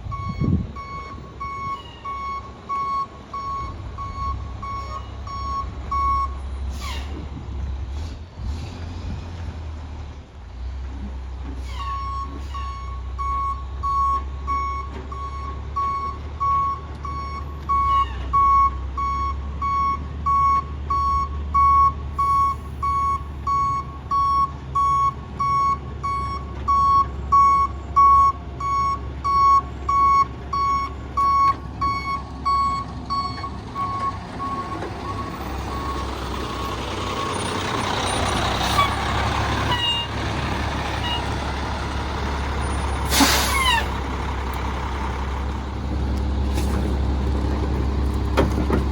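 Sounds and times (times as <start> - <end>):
truck backup alarm beeping: 0.0 - 6.6, 11.8 - 46.4
diesel engine running: 20.8 - 48.9.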